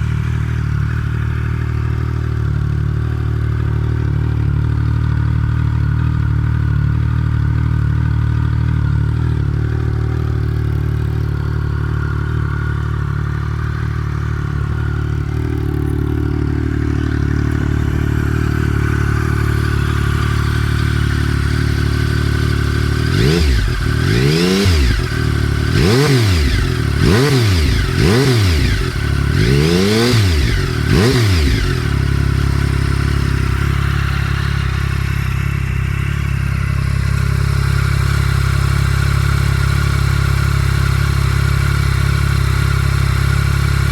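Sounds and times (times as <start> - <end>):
motorcycle engine idling: 0.0 - 43.9
engine revving throttle blips: 9.8 - 39.1.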